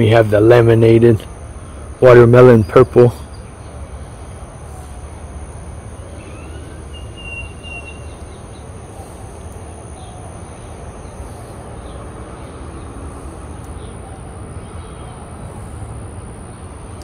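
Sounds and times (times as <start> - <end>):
high hiss: 0.0 - 17.0
birds chirping and whistling: 5.9 - 13.1.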